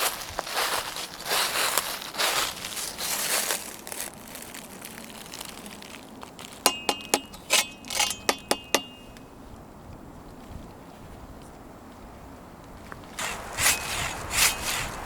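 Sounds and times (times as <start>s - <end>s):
camp cookware clinking: 6.6s - 9.2s.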